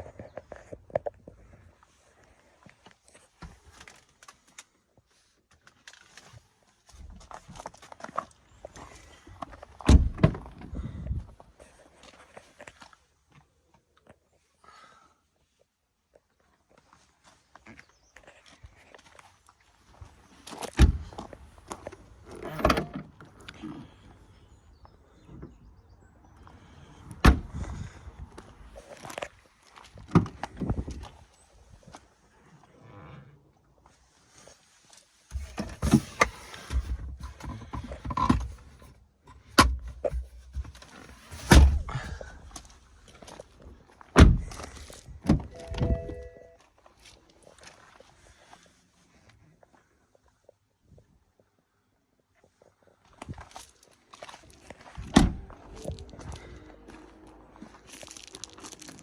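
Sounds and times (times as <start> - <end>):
car doors shutting: 22.3 - 23.1
handling clicks and rustles: 35.3 - 46.6
short electronic tone: 45.5 - 46.6.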